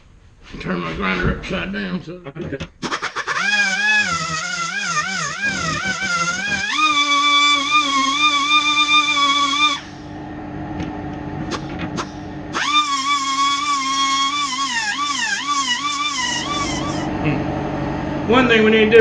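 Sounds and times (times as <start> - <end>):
die grinder whining: 2.8 - 10.0, 11.4 - 17.1.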